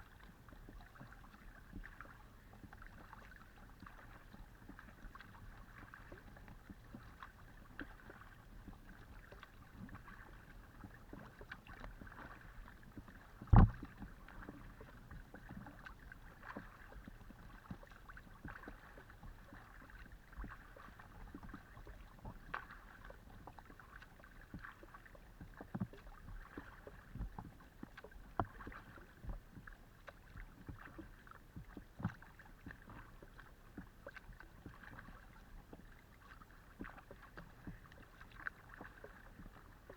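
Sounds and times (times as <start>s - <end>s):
paddle splashing in water: 0.1s - 39.9s
knocks on kayak hull: 13.5s - 14.0s.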